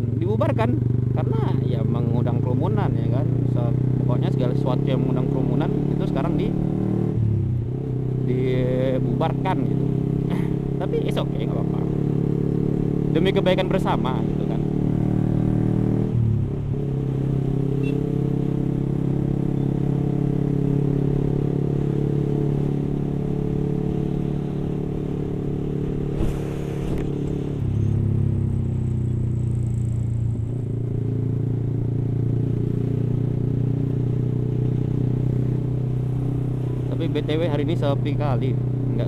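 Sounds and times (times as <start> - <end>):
motorcycle engine cruising: 0.0 - 39.0
brief hiss: 26.2 - 27.0.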